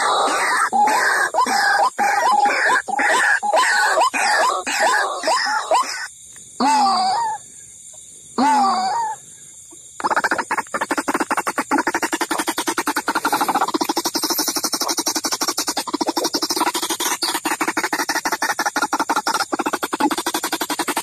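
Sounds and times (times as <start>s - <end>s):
waterhen calls: 0.0s - 6.1s, 10.0s - 21.0s.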